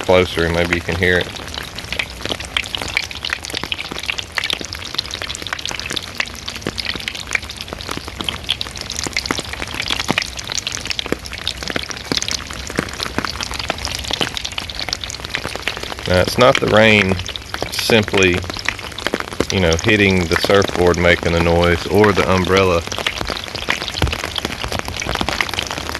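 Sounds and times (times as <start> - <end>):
rain pattering: 0.0 - 25.9.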